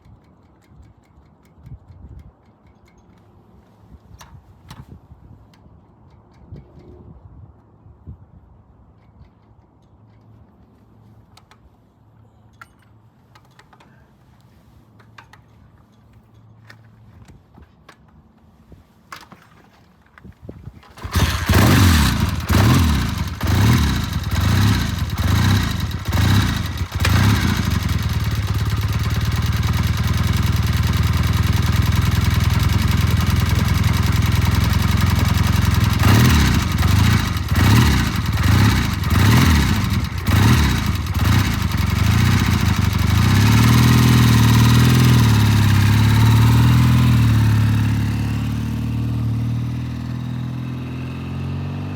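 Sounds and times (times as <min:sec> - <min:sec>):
motorcycle engine revving: 0:21.0 - 0:51.9.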